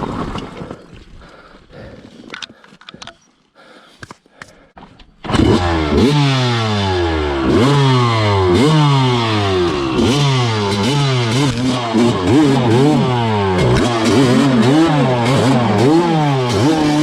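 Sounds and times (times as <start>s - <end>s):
dirt bike engine revving: 5.2s - 17.0s.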